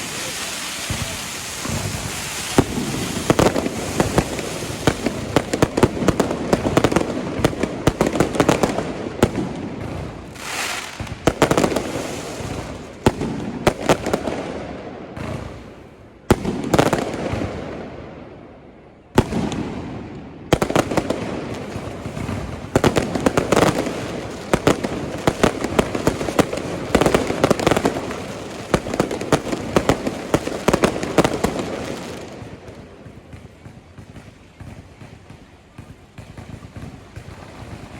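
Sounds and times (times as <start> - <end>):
firework shell bursts and crackling: 0.0 - 14.4, 20.5 - 37.9
loud firework bangs: 0.0 - 18.2, 19.1 - 37.9.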